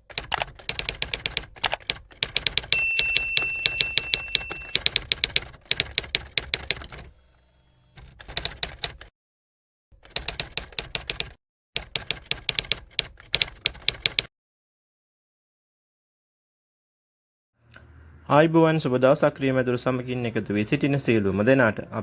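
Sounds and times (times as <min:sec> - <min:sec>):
bell-like ding: 0:02.8 - 0:04.8.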